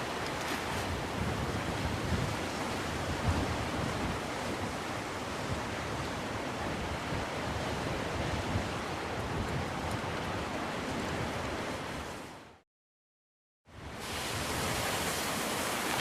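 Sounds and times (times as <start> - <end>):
wind buffeting microphone: 0.0 - 12.2
surf washing onto shore: 0.0 - 12.4, 13.8 - 16.0.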